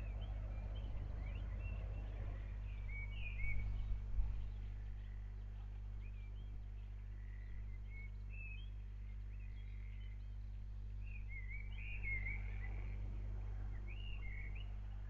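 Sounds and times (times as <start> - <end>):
birds chirping and whistling: 0.0 - 4.6, 11.0 - 13.1, 13.7 - 14.7
steady low hum: 0.0 - 15.0.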